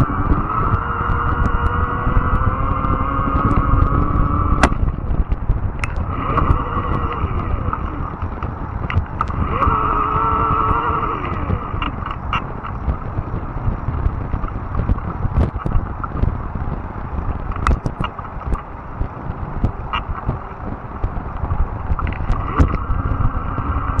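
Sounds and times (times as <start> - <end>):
electric motor whine: 0.0 - 4.7, 5.8 - 8.4, 9.1 - 12.2, 22.0 - 24.0
sharp ticks and clicks: 0.0 - 24.0
tyres rumbling on rough ground: 0.0 - 24.0.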